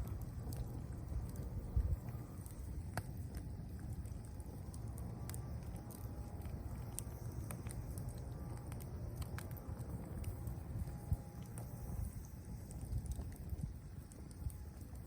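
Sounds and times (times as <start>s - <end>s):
campfire crackling and popping: 0.0s - 15.0s
low fire rumble: 0.0s - 15.0s.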